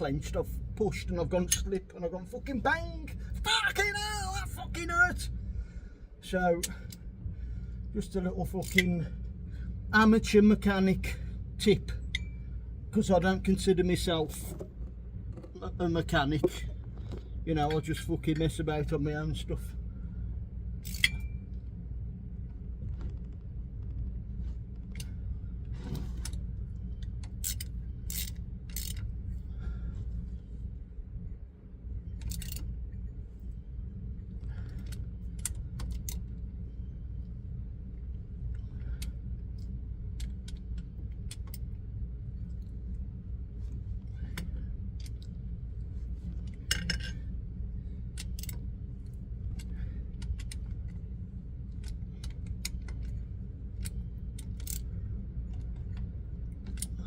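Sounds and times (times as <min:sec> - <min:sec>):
low hum: 0:00.0 - 0:57.0
wrench clinking against metal: 0:12.0 - 0:12.4, 0:20.8 - 0:21.4.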